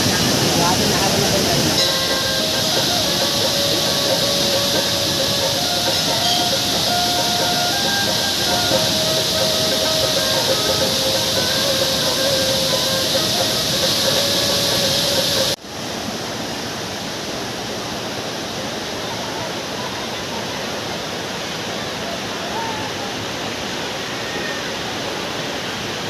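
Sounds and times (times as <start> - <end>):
hiss with held tone: 0.0 - 15.9
waterfall rushing: 0.0 - 26.0.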